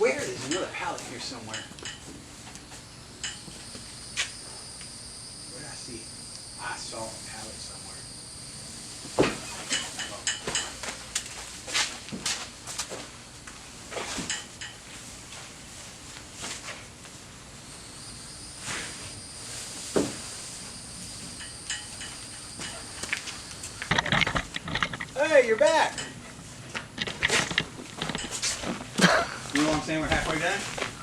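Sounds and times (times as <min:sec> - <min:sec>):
crickets chirring: 0:00.0 - 0:31.0
hard objects knocking and clattering: 0:23.8 - 0:30.3.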